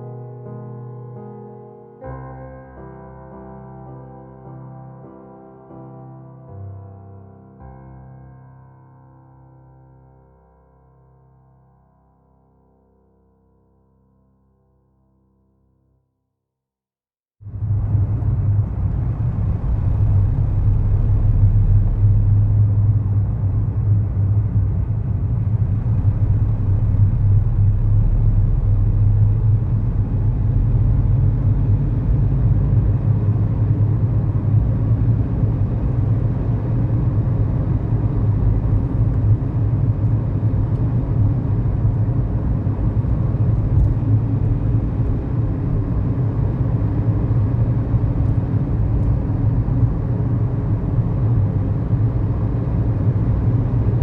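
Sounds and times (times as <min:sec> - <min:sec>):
road and tyre noise: 0:17.5 - 0:54.0
car engine running: 0:17.6 - 0:54.0.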